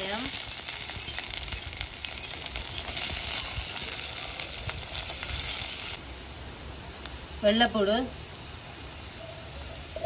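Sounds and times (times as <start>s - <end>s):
vegetables sizzling in hot oil: 0.0s - 6.4s.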